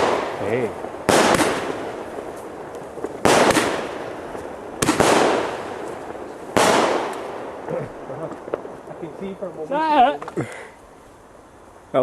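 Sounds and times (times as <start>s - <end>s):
fireworks bangs: 0.0s - 10.4s
fireworks crackle: 0.0s - 12.0s.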